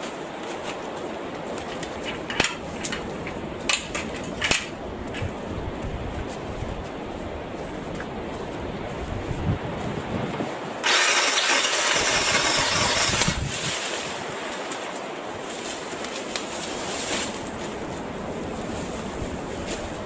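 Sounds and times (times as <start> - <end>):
outdoor background noise: 0.0 - 20.0
battery-powered saw running: 10.8 - 13.5.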